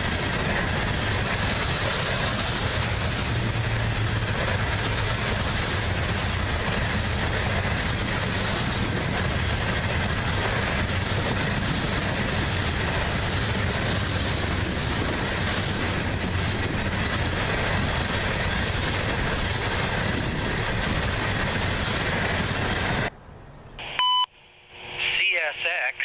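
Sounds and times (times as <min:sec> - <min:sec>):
train wheels rumbling on rail: 0:00.0 - 0:23.1
scanner radio beep: 0:23.8 - 0:24.3.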